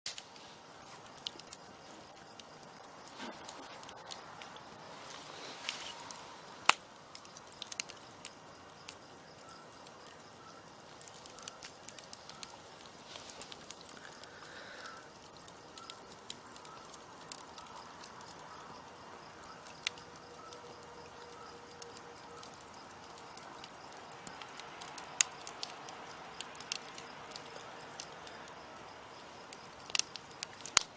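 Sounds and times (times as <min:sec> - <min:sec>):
campfire crackling: 0:00.1 - 0:30.9
sharp fire pops: 0:05.3 - 0:09.1, 0:29.1 - 0:30.9.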